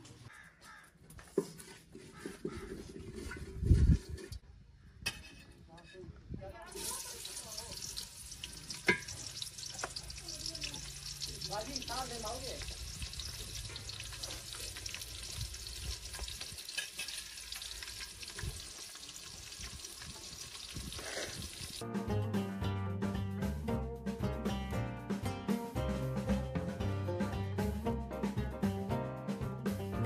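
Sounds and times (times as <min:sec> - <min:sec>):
onion sizzling in hot oil: 0:06.7 - 0:21.8.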